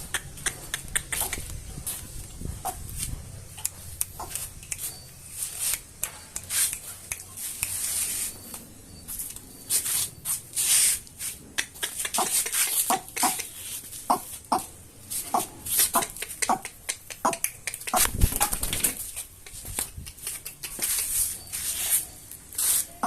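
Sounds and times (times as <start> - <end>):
sharp clicks: 0.0 - 1.6, 16.0 - 21.3
birds scuffling and rustling: 0.0 - 23.0.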